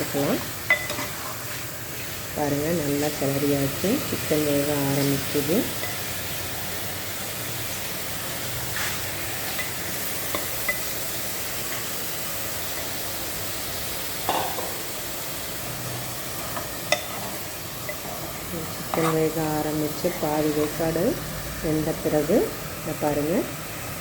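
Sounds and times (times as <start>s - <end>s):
food sizzling in oil: 0.0s - 24.0s
spoon scraping a pan: 0.4s - 2.1s, 16.4s - 20.9s.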